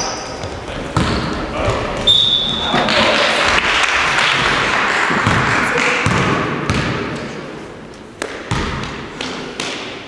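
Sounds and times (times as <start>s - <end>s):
basketball bouncing: 0.4s - 2.1s, 5.1s - 7.2s, 8.2s - 10.0s.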